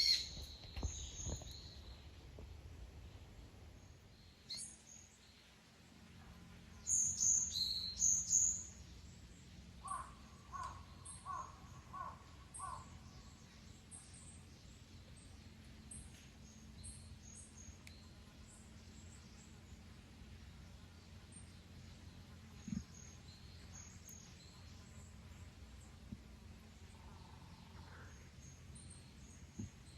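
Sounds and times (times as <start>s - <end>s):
birds chirping: 0.0s - 2.1s.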